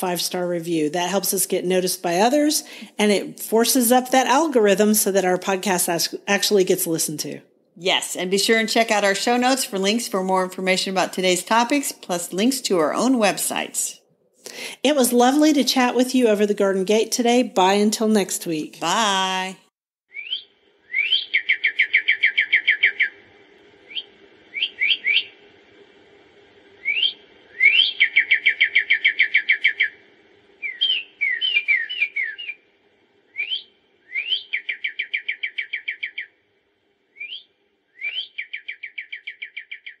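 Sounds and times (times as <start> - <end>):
faint steady hum: 0.0 - 19.7, 20.3 - 39.6
songbird whistling and trilling: 20.1 - 23.2, 23.9 - 25.3, 26.8 - 30.0, 30.6 - 32.6, 33.3 - 36.3, 37.2 - 40.0.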